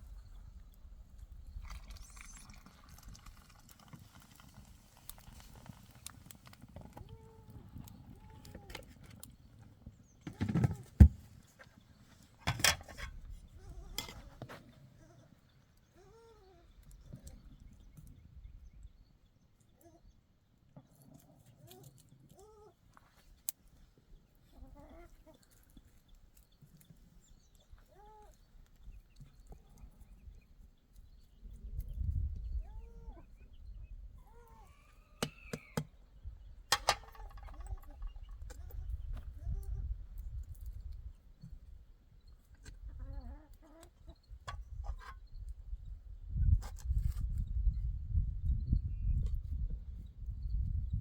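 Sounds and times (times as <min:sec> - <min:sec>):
farm animal calling: 0:13.5 - 0:17.4, 0:24.4 - 0:25.7, 0:27.6 - 0:28.6, 0:32.6 - 0:33.5, 0:34.2 - 0:36.0
chickens clucking: 0:24.5 - 0:25.6.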